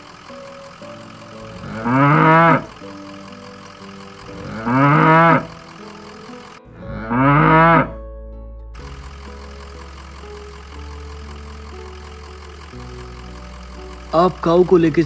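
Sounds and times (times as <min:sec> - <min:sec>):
cow mooing: 0:01.4 - 0:02.8, 0:04.2 - 0:05.6, 0:06.8 - 0:08.0.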